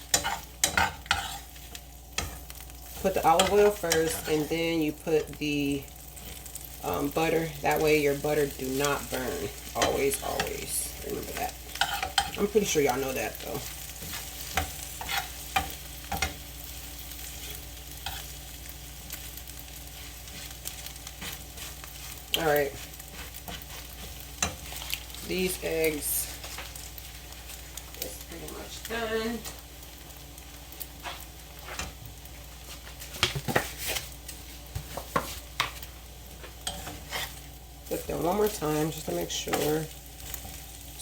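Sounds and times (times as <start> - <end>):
utensil scraping a pan: 0.0 - 4.9, 7.6 - 16.4, 19.9 - 26.8, 31.0 - 32.0, 32.6 - 40.6
eggs sizzling in oil: 0.0 - 41.0.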